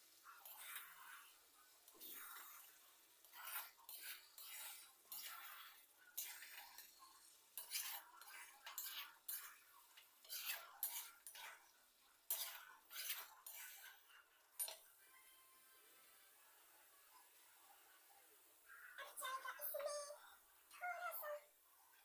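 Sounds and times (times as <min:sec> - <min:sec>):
spoon scraping a cooking pot: 0:00.4 - 0:14.9.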